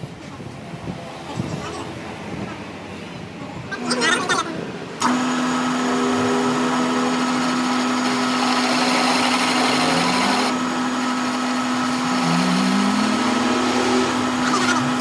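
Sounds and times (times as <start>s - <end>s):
power tool motor humming: 5.0s - 15.0s
low tone rising in pitch: 12.0s - 15.0s.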